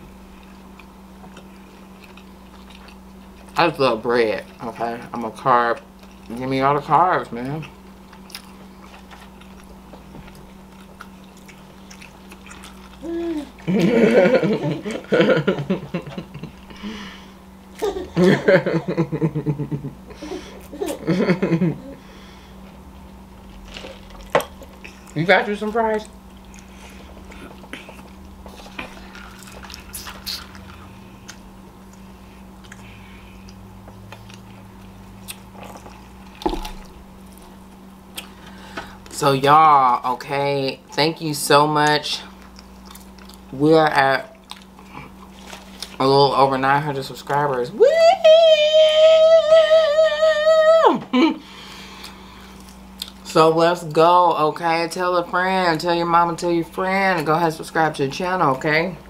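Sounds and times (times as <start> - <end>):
steady low hum: 0.0 - 59.0
person chewing: 0.1 - 3.6, 5.8 - 6.5, 7.4 - 14.0, 22.6 - 25.2, 25.9 - 39.1, 42.2 - 43.6, 44.3 - 46.0, 51.5 - 53.3
person humming: 13.0 - 13.9, 47.8 - 51.4.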